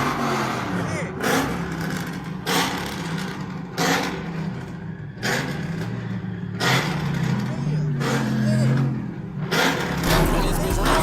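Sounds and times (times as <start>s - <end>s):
car engines revving in blips: 0.0s - 11.0s
steady engine drone: 7.1s - 11.0s.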